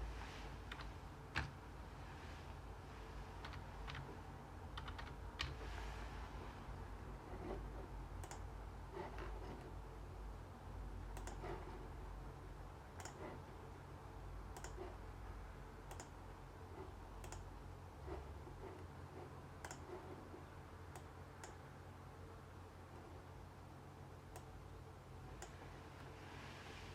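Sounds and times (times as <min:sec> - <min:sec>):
steady low hum: 0:00.0 - 0:26.9
sharp clicks: 0:14.5 - 0:14.8, 0:17.2 - 0:17.5.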